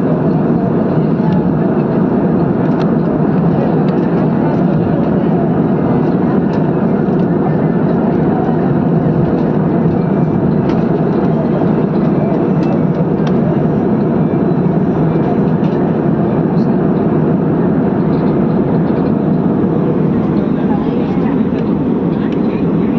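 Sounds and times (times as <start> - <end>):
airplane cabin engine noise: 0.0 - 22.9.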